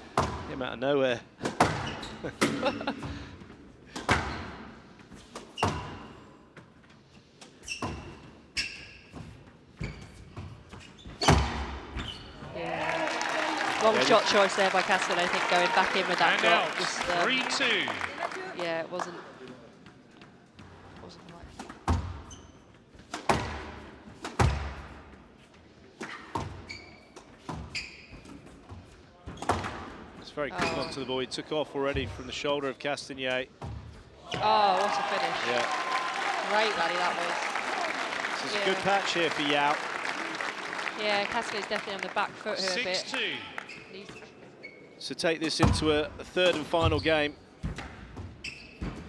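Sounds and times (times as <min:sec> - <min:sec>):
squash ball struck by rackets: 0:00.1 - 0:00.5, 0:04.0 - 0:04.5, 0:23.1 - 0:24.9
shoe squeak: 0:05.1 - 0:06.4, 0:07.5 - 0:12.5, 0:22.2 - 0:22.9, 0:26.0 - 0:29.6, 0:30.6 - 0:31.2, 0:43.6 - 0:45.0, 0:46.5 - 0:47.5, 0:48.3 - 0:49.0.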